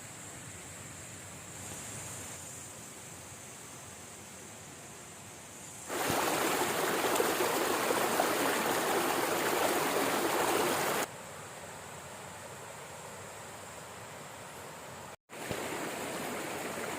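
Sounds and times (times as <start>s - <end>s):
steady hiss: 0.0s - 16.9s
rushing stream water: 5.9s - 11.1s, 15.3s - 16.9s.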